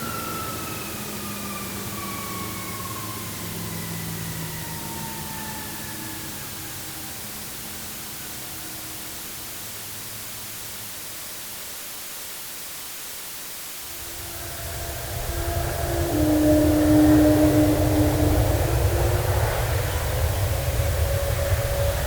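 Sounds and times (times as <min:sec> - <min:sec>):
airplane hiss: 0:00.0 - 0:22.0
falling whine: 0:13.7 - 0:22.0
low rumble with steady tones: 0:13.9 - 0:22.0.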